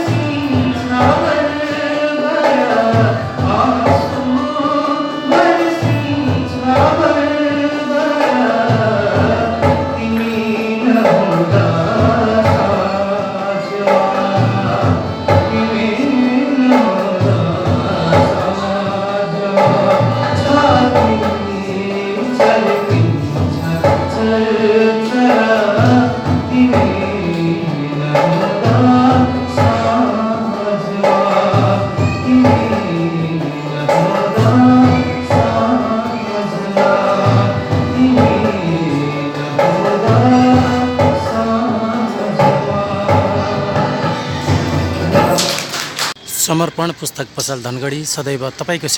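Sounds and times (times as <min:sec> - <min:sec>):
instrumental accompaniment: 0:00.0 - 0:48.9
man singing: 0:00.0 - 0:48.9.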